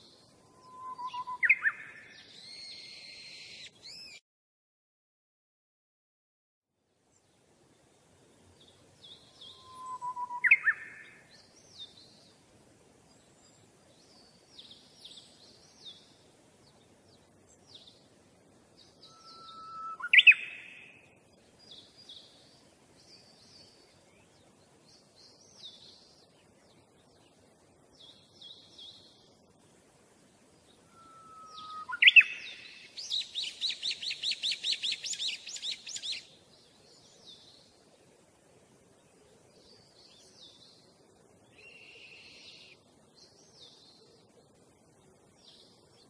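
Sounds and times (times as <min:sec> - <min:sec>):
birds chirping: 0:08.3 - 0:12.4, 0:13.0 - 0:29.4, 0:30.4 - 0:37.8
bird whistle with rising sweep: 0:09.5 - 0:10.6, 0:19.1 - 0:20.4, 0:30.9 - 0:32.4.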